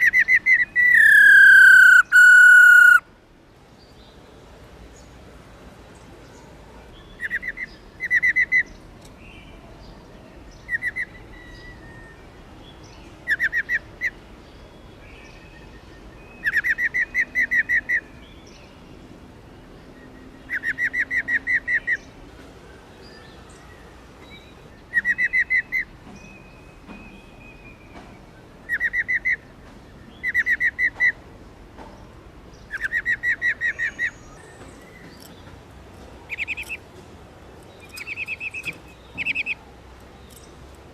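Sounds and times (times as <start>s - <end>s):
bird call with rapid pulsed notes: 0.0s - 3.0s.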